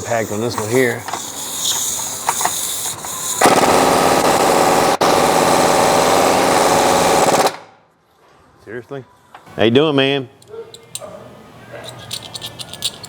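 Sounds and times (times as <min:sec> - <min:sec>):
handling clicks and knocks: 0:10.4 - 0:11.2, 0:11.8 - 0:13.0.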